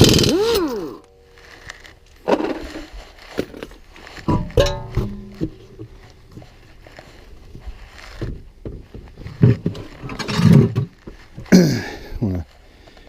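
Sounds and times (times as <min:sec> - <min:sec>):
rumbling scrape: 0:01.1 - 0:11.5.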